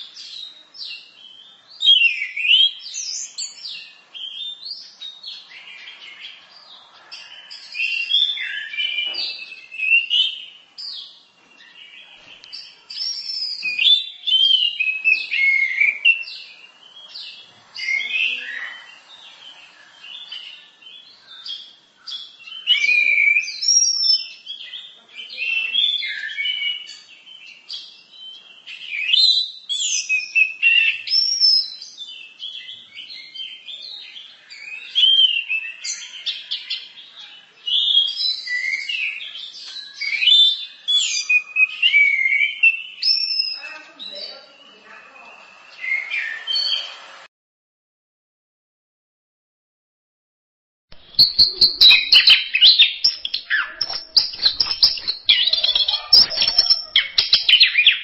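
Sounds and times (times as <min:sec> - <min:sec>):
thrush singing whistled phrases: 0:51.0 - 0:58.0.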